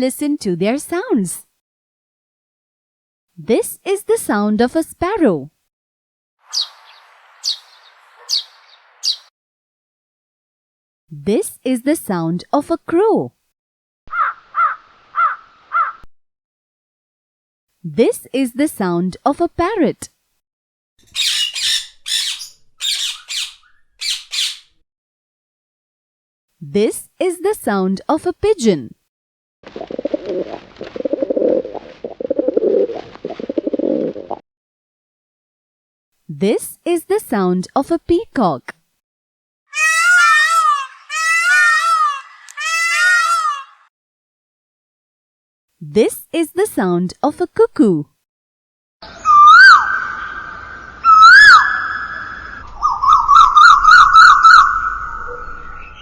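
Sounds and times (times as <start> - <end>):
cuckoo calling: 6.5 - 9.3, 49.0 - 56.0
pigeon cooing: 29.7 - 34.4.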